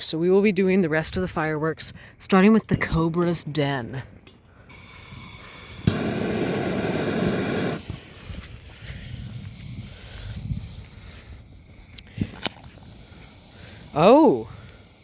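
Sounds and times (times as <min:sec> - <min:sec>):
firework crack: 0:04.7 - 0:15.0
firework fuse hissing: 0:04.7 - 0:15.0
firework hissing and sputtering: 0:04.7 - 0:15.0.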